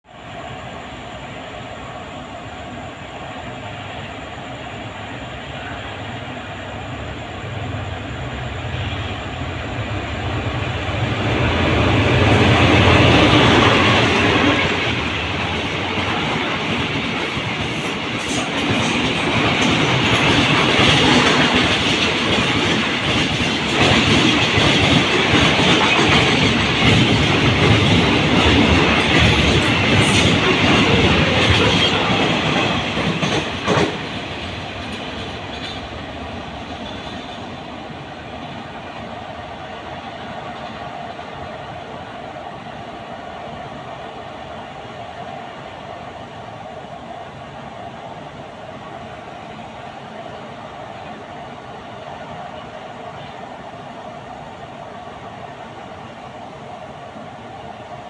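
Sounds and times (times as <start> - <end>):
diesel train engine rumble: 0.1 - 58.0
train wheels clattering on rails: 8.7 - 41.4.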